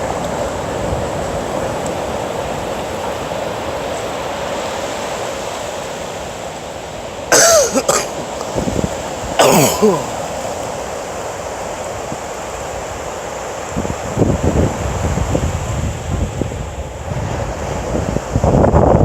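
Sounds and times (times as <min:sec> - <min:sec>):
wind: 0:00.0 - 0:19.0
short loud vocal sounds: 0:07.3 - 0:08.5, 0:09.4 - 0:10.3.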